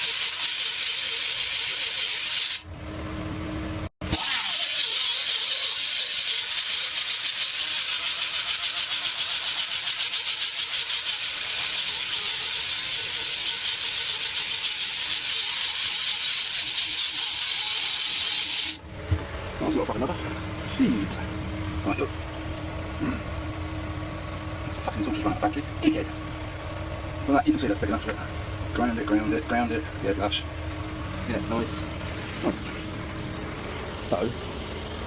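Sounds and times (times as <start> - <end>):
rotary grinder buffing rubber: 4.6 - 18.8.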